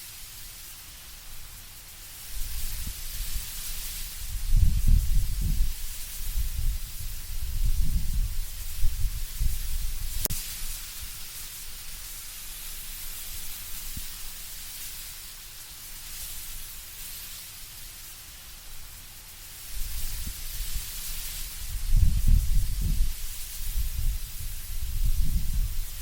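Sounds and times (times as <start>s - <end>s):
leaves rustling in wind: 0.0s - 26.0s
low rumbling wind gusts: 2.4s - 10.3s, 21.5s - 26.0s.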